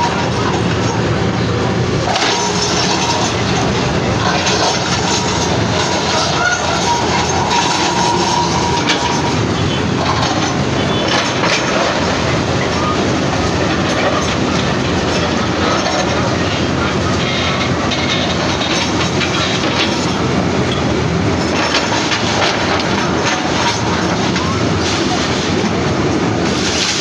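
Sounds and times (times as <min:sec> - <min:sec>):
demolition machinery clatter and grinding: 0:00.0 - 0:27.0
faint metallic squeals: 0:02.1 - 0:20.8.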